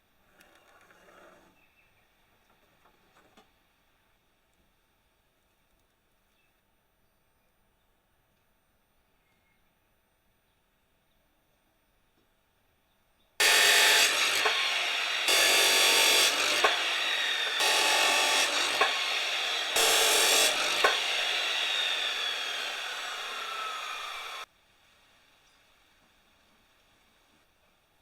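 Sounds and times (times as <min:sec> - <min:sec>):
angle grinder cutting steel: 0:13.4 - 0:24.5
grinder disc winding down whine: 0:13.4 - 0:24.5.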